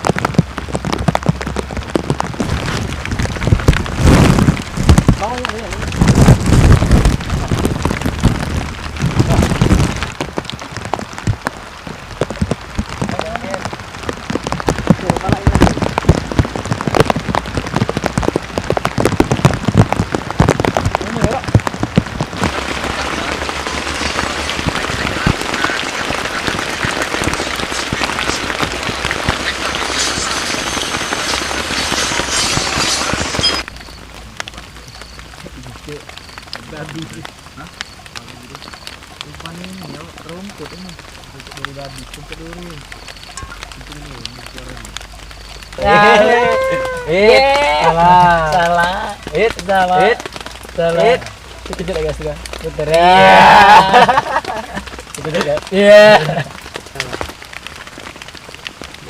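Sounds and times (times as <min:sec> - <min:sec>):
low thumps and rumble: 0:00.0 - 0:25.6
crackling drop hits: 0:00.0 - 0:59.0
rain pattering: 0:00.0 - 0:59.0.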